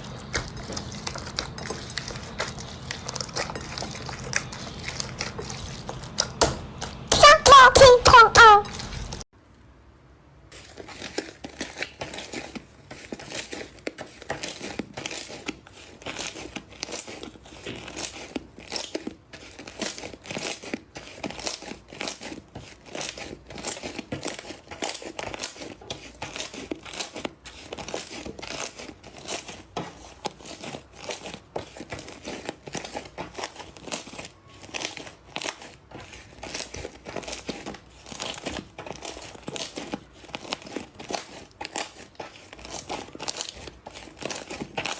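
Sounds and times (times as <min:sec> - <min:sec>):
slime crackling and popping: 0:10.5 - 0:44.9.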